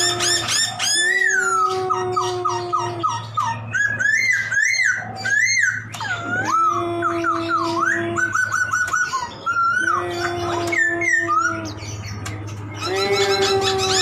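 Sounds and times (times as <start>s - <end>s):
constant low hum: 0.0s - 14.0s.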